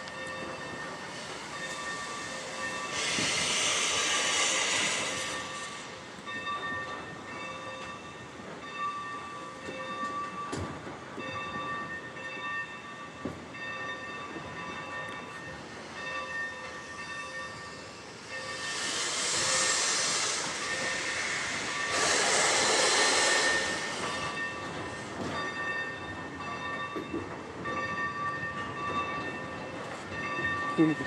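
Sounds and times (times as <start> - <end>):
locomotive bell ringing: 0.0 - 31.0
steam hiss: 0.9 - 6.4, 16.7 - 25.3.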